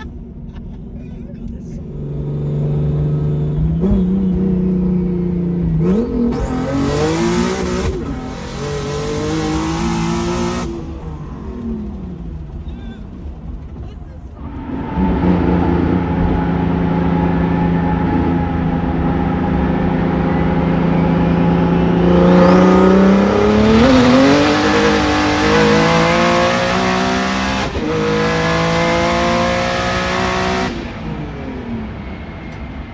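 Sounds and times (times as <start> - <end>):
car engine running hard: 0.0 - 32.9.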